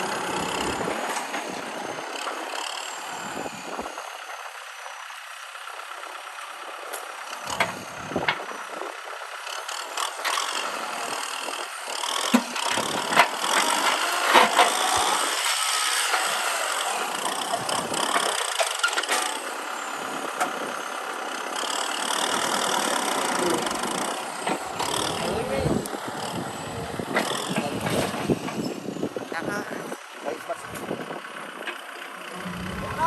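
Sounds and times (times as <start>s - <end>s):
tractor running: 0.0s - 33.0s.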